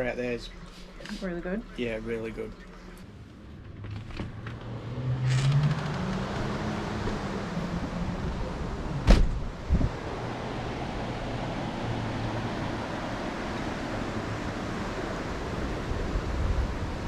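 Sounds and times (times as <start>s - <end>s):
soft thump: 9.0s - 9.9s
river water rushing: 9.9s - 17.0s.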